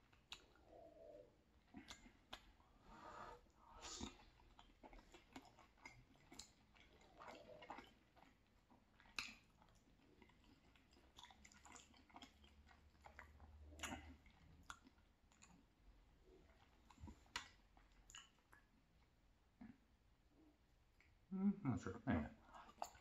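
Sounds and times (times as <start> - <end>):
wet mouth clicks and smacks: 0.0 - 0.6, 1.6 - 2.6, 3.8 - 15.7, 16.4 - 19.8
close-miked chewing: 0.0 - 21.3, 22.3 - 23.0.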